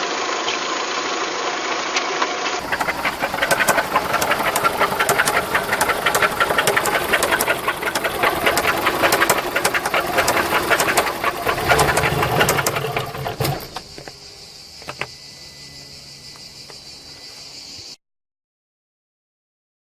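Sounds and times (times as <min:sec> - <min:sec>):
car engine knocking and clattering: 0:02.6 - 0:14.2, 0:14.8 - 0:15.1
faint steady high tone: 0:13.8 - 0:18.0.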